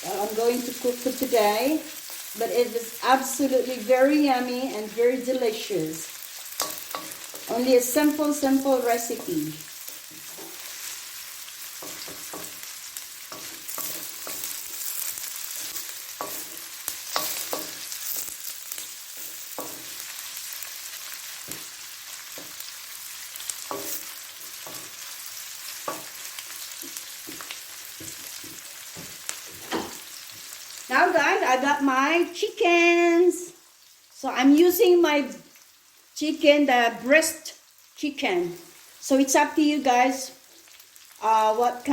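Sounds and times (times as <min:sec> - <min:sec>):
food sizzling in oil: 0:00.0 - 0:41.9
utensil scraping a pan: 0:13.3 - 0:20.1, 0:23.5 - 0:30.0.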